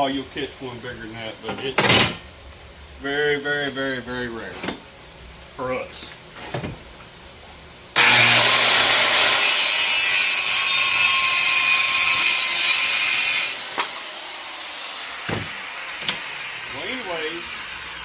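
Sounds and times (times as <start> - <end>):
power saw cutting plywood: 8.0 - 18.0.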